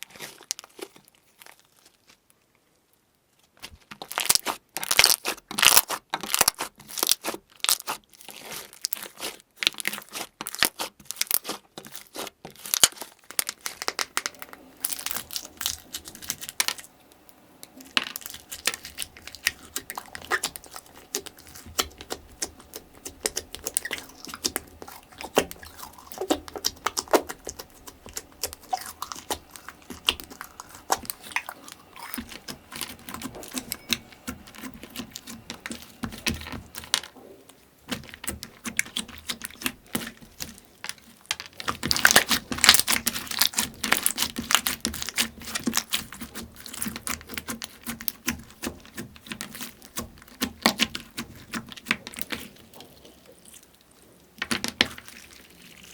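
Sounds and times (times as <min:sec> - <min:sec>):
slime crackling and popping: 0:03.6 - 0:37.2, 0:37.8 - 0:55.9.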